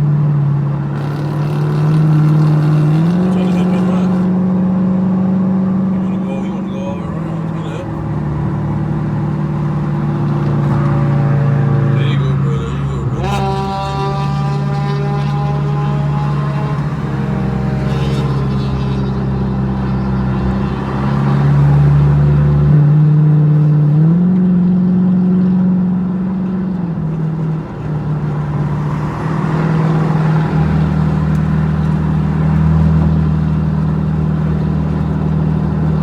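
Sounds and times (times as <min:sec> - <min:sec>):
car exhaust drone: 0:00.0 - 0:36.0
deep engine rumble: 0:00.0 - 0:36.0.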